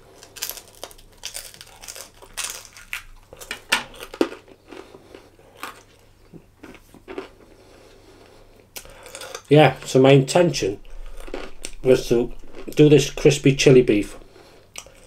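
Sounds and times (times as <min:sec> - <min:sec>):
person chewing food: 0:00.0 - 0:09.5, 0:10.8 - 0:12.8, 0:14.6 - 0:15.0.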